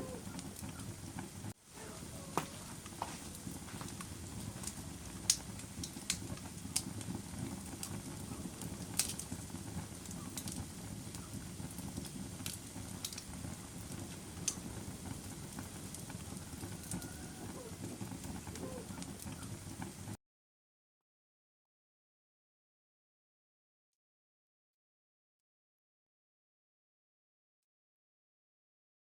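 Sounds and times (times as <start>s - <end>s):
wood fire crackling: 0.0s - 20.2s.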